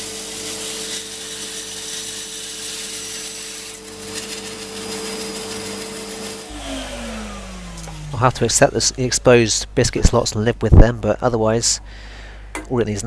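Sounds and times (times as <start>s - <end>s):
saw blade cutting wood: 0.0s - 9.0s
bandsaw motor hum: 0.0s - 10.1s.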